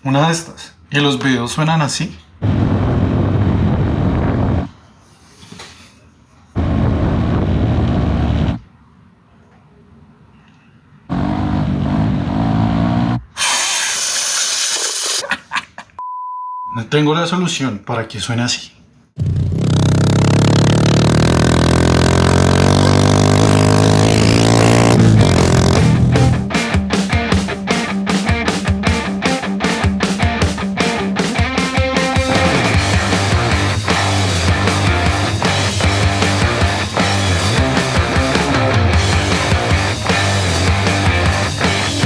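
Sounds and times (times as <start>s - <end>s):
motorcycle engine exhaust note: 19.2s - 26.5s.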